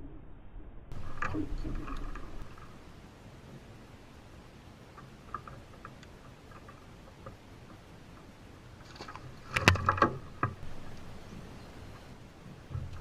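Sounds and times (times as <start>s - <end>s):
sharp knocks and clatter: 12.7s - 13.0s.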